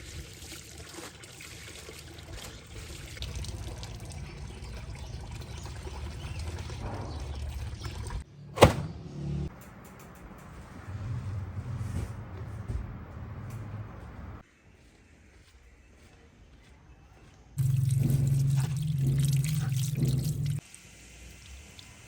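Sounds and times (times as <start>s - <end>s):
water pouring and trickling: 0.0s - 8.2s, 17.6s - 22.0s.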